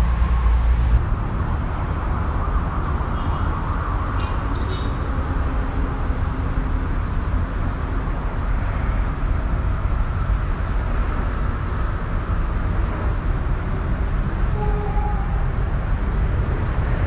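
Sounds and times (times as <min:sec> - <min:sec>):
diesel train rumbling past: 0:14.2 - 0:17.0.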